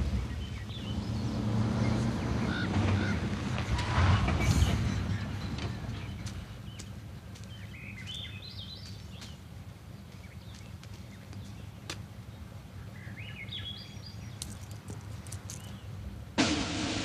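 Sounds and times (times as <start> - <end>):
low outdoor rumble: 0.0 - 17.0
bird chirping call: 12.8 - 14.6.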